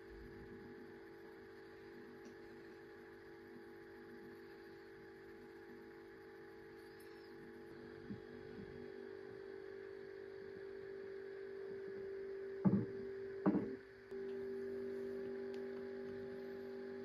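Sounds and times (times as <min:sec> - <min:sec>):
steady tonal hum: 0:00.0 - 0:17.0
short knocks: 0:12.6 - 0:13.8.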